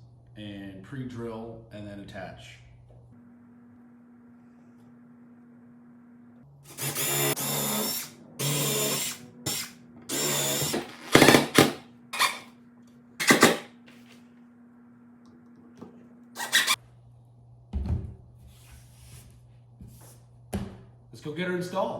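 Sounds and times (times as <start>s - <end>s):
power drill boring into wood: 6.7s - 12.4s, 13.2s - 13.6s.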